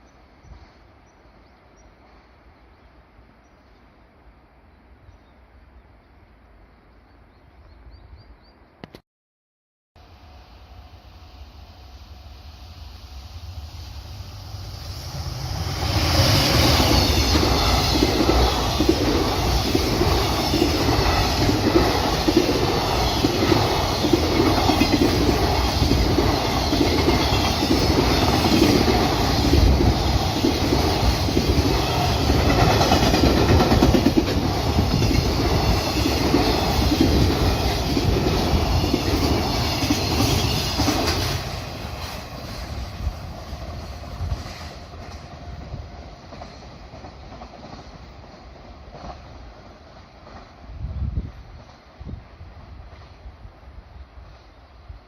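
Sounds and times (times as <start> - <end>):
train wheels clattering over rail joints: 16.0 - 42.8.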